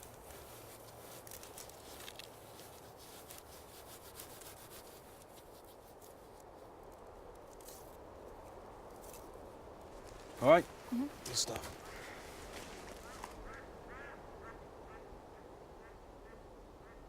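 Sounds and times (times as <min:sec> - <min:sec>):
hands rustling wipes and dressing: 0:00.0 - 0:06.4
small scratchy crackles: 0:00.0 - 0:10.6.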